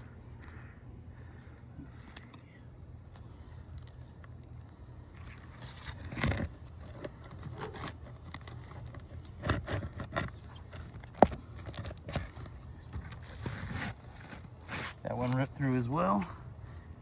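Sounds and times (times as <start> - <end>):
pry tool scraping shingles: 5.2 - 15.4.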